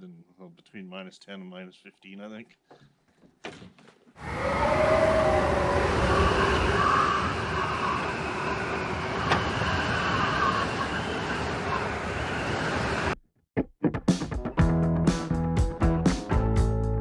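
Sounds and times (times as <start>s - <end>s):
vehicle engine and road noise: 5.4s - 13.2s.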